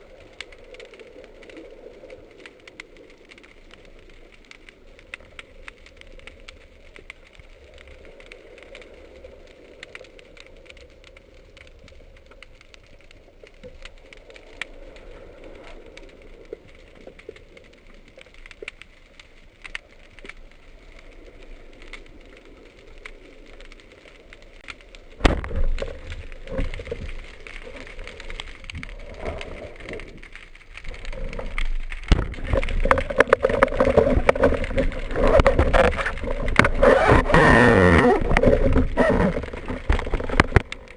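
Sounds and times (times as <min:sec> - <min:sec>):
underwater clicks and crackle: 0:00.0 - 0:40.9
churning underwater rumble: 0:20.6 - 0:40.9.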